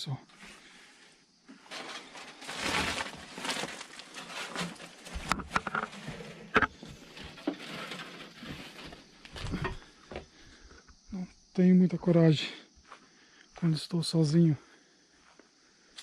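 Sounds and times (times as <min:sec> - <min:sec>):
footsteps on dry debris: 0:01.7 - 0:08.0.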